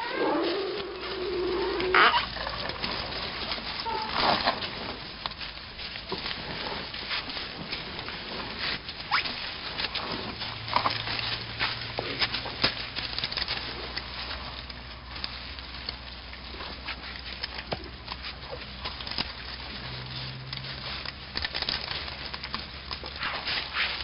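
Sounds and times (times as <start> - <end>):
high animal call: 0.0 - 2.8, 3.8 - 4.2
bamboo and brush crackling: 0.0 - 24.0.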